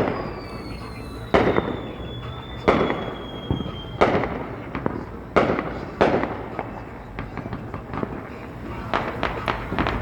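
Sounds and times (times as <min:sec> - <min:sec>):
falling firework whistle: 0:00.0 - 0:05.6
fireworks bangs with echo: 0:00.0 - 0:10.0
small firework pops: 0:00.0 - 0:10.0.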